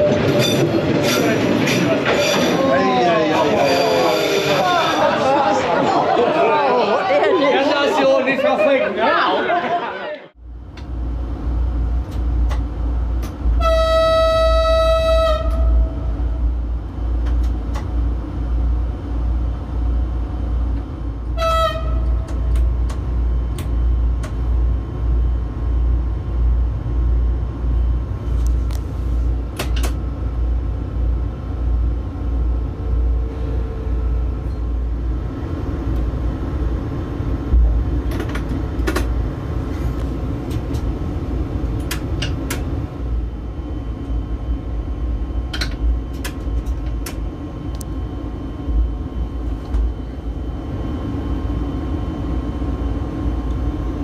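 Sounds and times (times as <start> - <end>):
train rumbling: 0.0 - 7.0, 9.6 - 54.0
train horn blasts: 13.5 - 16.0, 21.3 - 22.2.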